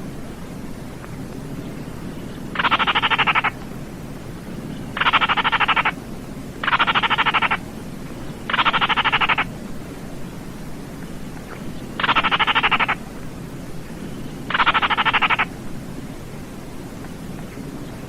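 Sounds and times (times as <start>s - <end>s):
bird rattling trills: 2.5s - 3.6s, 4.8s - 6.0s, 6.6s - 7.6s, 8.3s - 9.5s, 11.9s - 13.0s, 14.0s - 15.5s.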